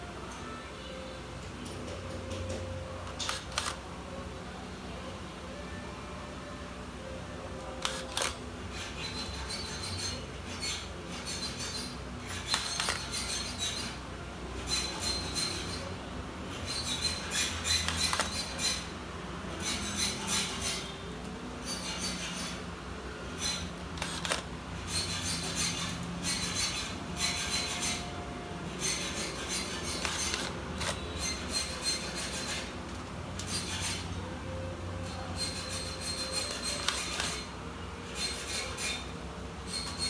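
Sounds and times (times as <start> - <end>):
scratchy rubbing on laptop parts: 7.8 - 14.0, 23.4 - 28.0, 28.7 - 32.8, 35.1 - 37.5.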